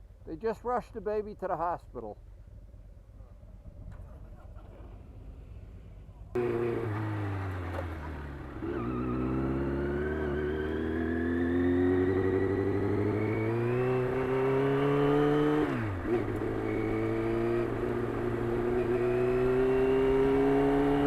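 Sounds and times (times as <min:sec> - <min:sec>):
motorcycle engine accelerating: 0:06.3 - 0:21.0.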